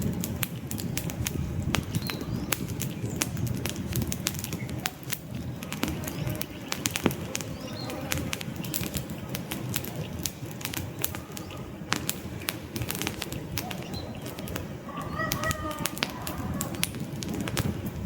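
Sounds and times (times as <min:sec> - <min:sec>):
campfire crackling and popping: 0:00.0 - 0:18.0
low rush of flame: 0:00.0 - 0:18.0
faint bird chirp: 0:05.6 - 0:09.2, 0:13.6 - 0:17.0.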